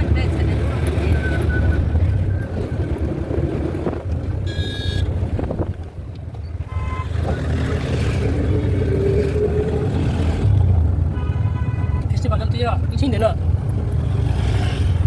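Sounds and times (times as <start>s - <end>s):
road traffic rumble: 0.0s - 15.0s
vehicle horn toot: 4.5s - 5.1s, 6.7s - 7.2s, 11.2s - 12.1s.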